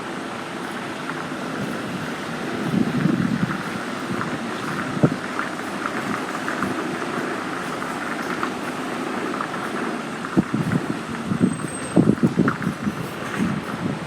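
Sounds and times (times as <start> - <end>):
road and engine noise: 0.0 - 14.0.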